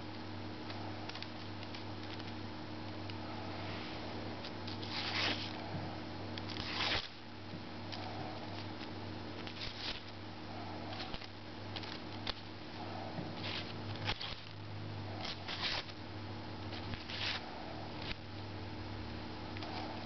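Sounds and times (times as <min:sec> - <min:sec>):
paper rustling and slicing: 0:04.7 - 0:05.6, 0:06.5 - 0:07.2, 0:13.4 - 0:14.5, 0:15.2 - 0:16.0, 0:16.8 - 0:17.4.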